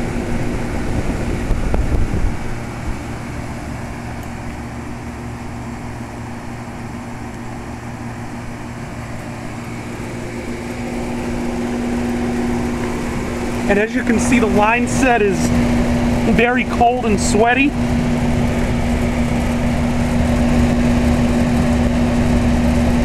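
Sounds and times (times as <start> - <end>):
condenser fans blowing air: 0.0 - 23.0
steady hum: 0.0 - 23.0.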